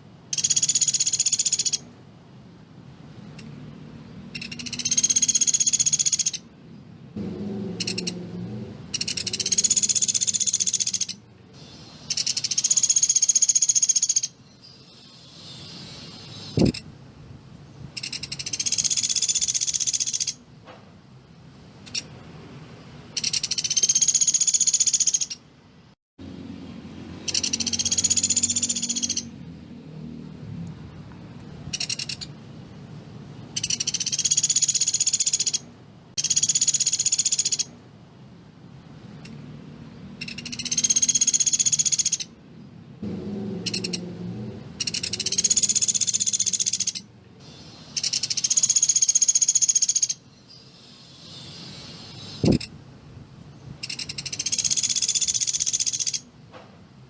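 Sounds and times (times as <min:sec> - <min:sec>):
woodpecker rattling trills: 0:00.3 - 0:01.8, 0:04.3 - 0:06.4, 0:07.8 - 0:08.2, 0:08.9 - 0:11.2, 0:12.1 - 0:14.4, 0:18.0 - 0:20.4, 0:23.2 - 0:25.4, 0:27.2 - 0:29.3, 0:31.7 - 0:32.3, 0:33.5 - 0:35.6, 0:36.2 - 0:37.7, 0:40.2 - 0:42.3, 0:43.6 - 0:44.0, 0:44.8 - 0:47.1, 0:47.9 - 0:50.2, 0:53.8 - 0:56.3.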